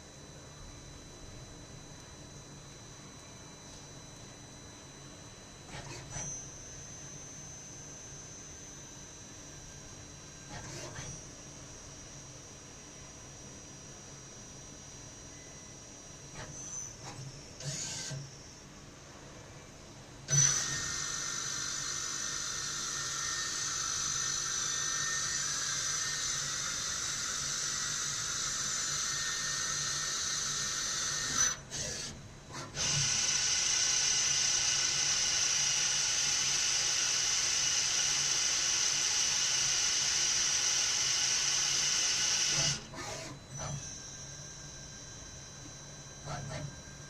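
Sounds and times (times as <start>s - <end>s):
lathe whining: 20.3s - 47.0s.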